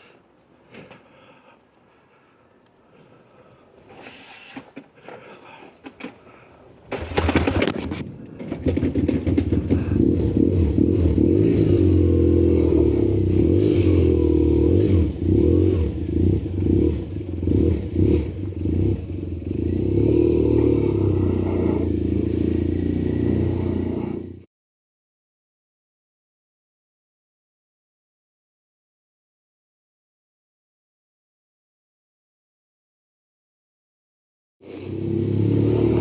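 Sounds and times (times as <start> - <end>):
motorcycle engine revving: 6.8 - 24.5, 34.8 - 36.0.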